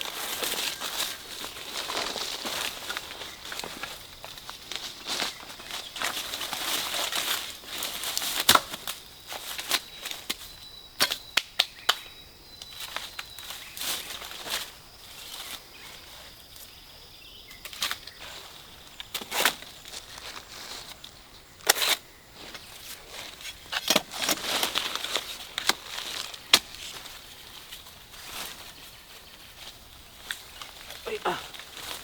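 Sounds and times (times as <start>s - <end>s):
dry vegetation rustling and crackling: 0.0s - 12.0s, 12.6s - 16.8s, 17.5s - 32.0s.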